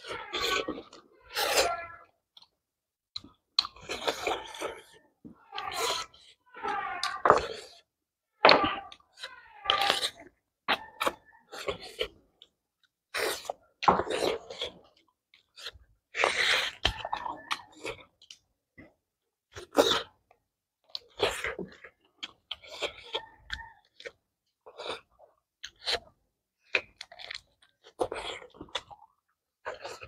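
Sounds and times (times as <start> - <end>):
people chewing: 0.0 - 7.9, 8.5 - 30.0.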